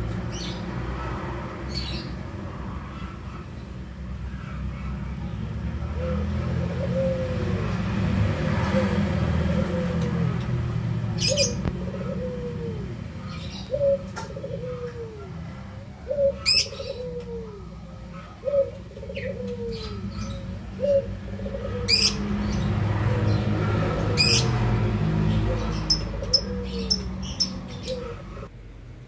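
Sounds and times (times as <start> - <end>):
bird calling with rolling note: 11.2 - 17.8, 18.4 - 28.4.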